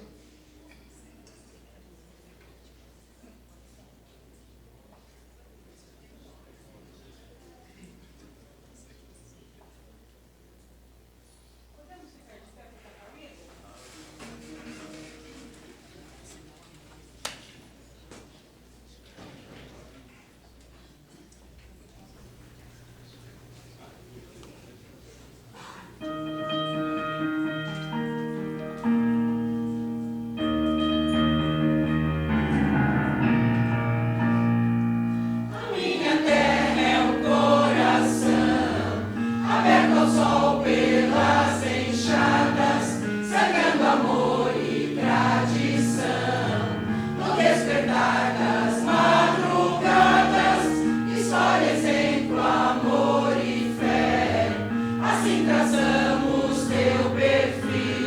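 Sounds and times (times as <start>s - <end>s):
electronic keyboard chords: 26.0s - 58.0s
choir singing: 35.4s - 58.0s.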